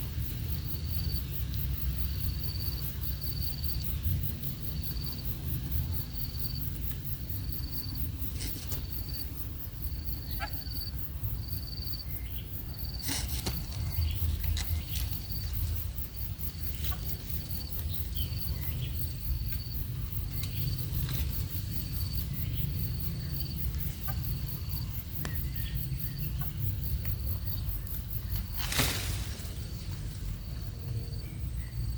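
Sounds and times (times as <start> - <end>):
sharp rustle or knock: 13.0 - 15.4.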